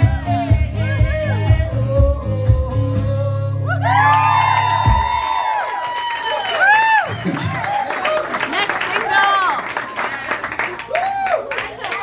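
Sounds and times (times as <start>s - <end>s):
man singing: 0.0s - 3.8s
acoustic guitar: 0.0s - 5.2s
audience cheering: 3.8s - 12.0s.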